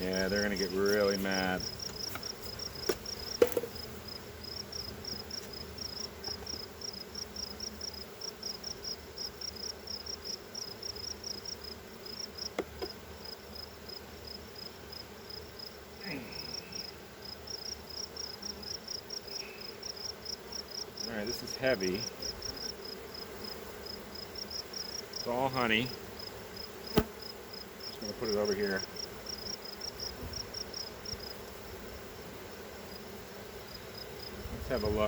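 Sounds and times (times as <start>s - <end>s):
insect chirping: 0.0s - 34.4s
honeybees buzzing: 0.0s - 35.0s
hive equipment knocking: 1.6s - 3.9s, 12.5s - 13.0s.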